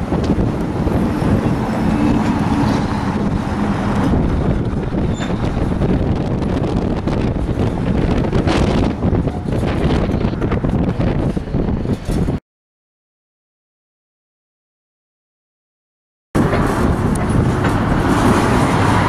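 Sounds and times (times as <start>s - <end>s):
freight cars rolling: 0.0s - 12.4s, 16.4s - 19.0s
wind buffeting the microphone: 0.0s - 12.4s, 16.4s - 19.0s.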